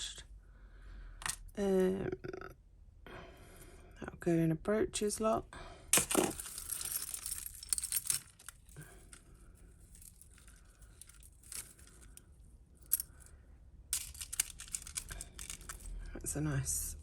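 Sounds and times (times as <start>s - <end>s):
jewellery jangling: 6.0s - 13.3s, 13.9s - 16.1s.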